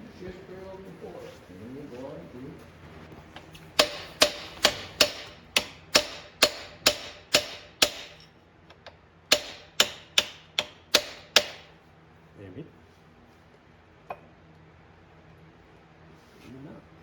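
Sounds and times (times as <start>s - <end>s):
hammer striking steel: 3.8s - 8.3s, 9.3s - 11.8s.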